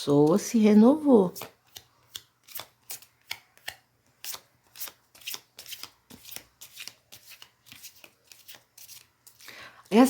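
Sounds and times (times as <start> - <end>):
cards being shuffled: 1.3 - 9.5.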